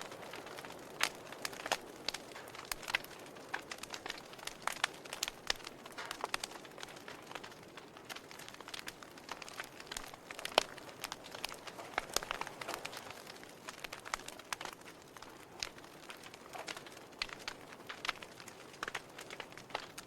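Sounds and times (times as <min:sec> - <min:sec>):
soft steady hiss: 0:00.0 - 0:20.0
wood fire crackling: 0:00.0 - 0:20.0.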